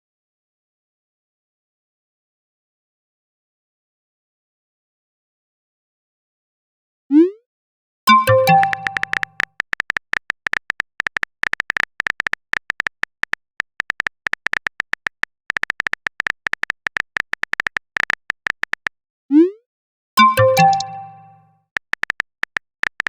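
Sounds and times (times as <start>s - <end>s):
chiming notification tone: 8.1s - 9.4s, 20.2s - 21.5s
phone keyboard typing clicks: 8.1s - 19.0s, 20.2s - 23.0s.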